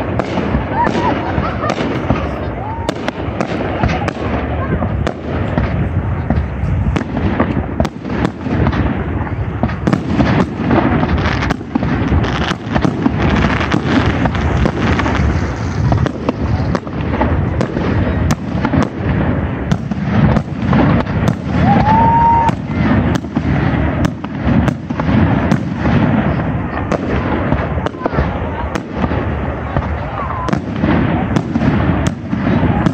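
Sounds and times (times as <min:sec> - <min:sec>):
rising firework whistle: 0:00.0 - 0:05.7, 0:19.8 - 0:25.6
fireworks bursting: 0:00.0 - 0:32.9
large crowd voices: 0:00.0 - 0:32.9.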